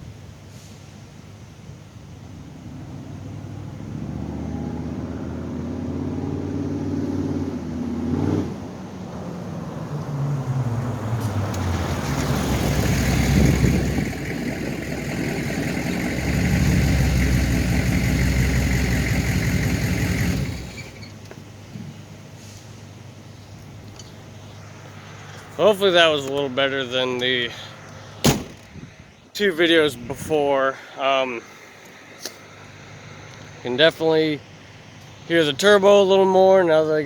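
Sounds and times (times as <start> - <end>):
diesel engine revving: 2.6 - 21.2
high turbo whine: 2.7 - 21.3.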